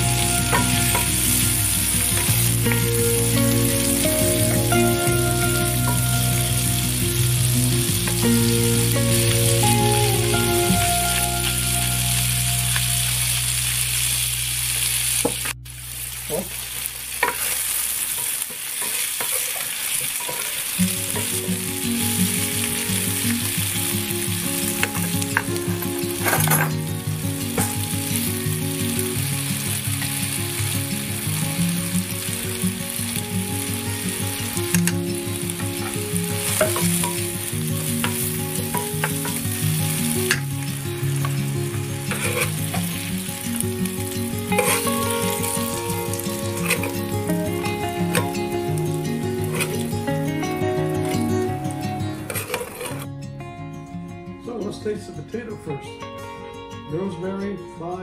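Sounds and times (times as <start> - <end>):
potatoes sizzling in a skillet: 0.0 - 53.0
utensil scraping a pan: 42.1 - 42.6, 46.6 - 47.0, 49.5 - 49.8, 52.3 - 53.1.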